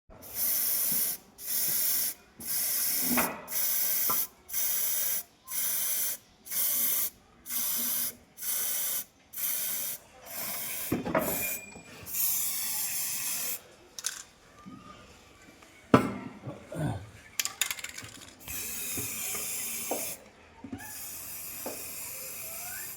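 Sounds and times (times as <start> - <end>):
sprayer hissing: 18.5 - 20.2.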